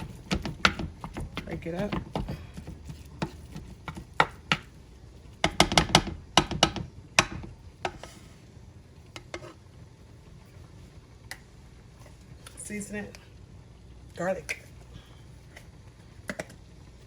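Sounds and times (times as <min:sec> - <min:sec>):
utensil scraping a pan: 0:00.0 - 0:04.7, 0:07.2 - 0:08.5, 0:09.2 - 0:09.6.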